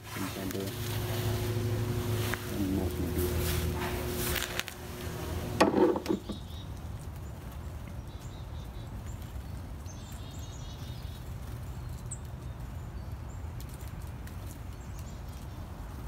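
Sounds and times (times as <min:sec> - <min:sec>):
low background rumble: 0:00.0 - 0:06.5
small birds chirping: 0:00.0 - 0:16.0
loud bump or rustle: 0:03.4 - 0:06.4.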